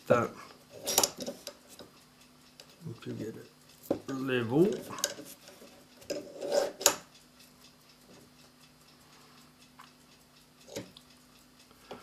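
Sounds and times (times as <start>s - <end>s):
faint steady hum: 0.0s - 12.0s
metal rubbing: 3.8s - 7.0s.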